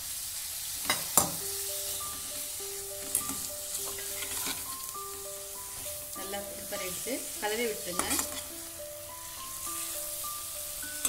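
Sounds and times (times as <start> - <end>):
food sizzling in a pan: 0.0 - 11.0
metal spatula scraping pan: 3.0 - 4.9, 7.8 - 8.5.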